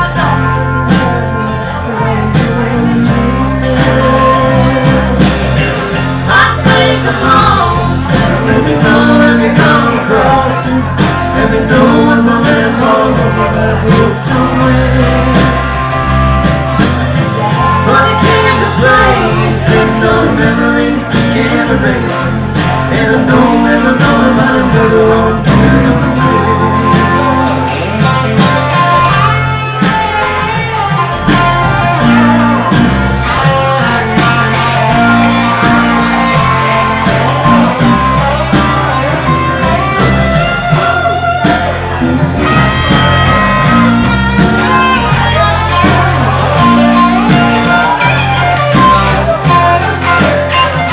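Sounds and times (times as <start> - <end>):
person singing: 0.0 - 16.5, 17.4 - 50.9
live blues band playing: 0.0 - 50.9.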